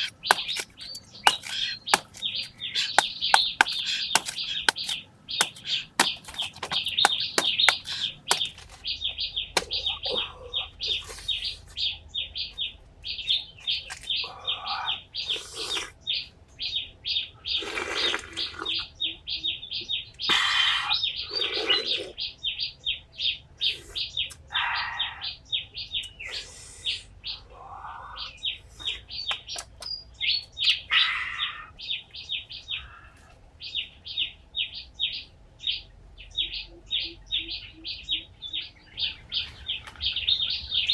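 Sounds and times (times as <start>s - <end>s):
sharp taps: 0.0s - 8.6s
fuller bird calls: 0.0s - 8.8s
birds chirping: 0.0s - 8.9s.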